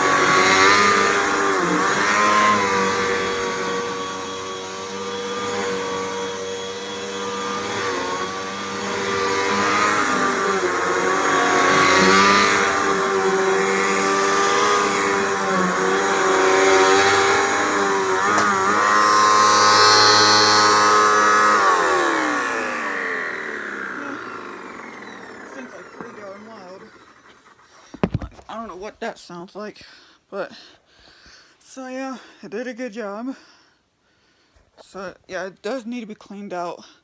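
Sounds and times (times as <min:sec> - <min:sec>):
vacuum cleaner motor whine: 0:00.0 - 0:28.4.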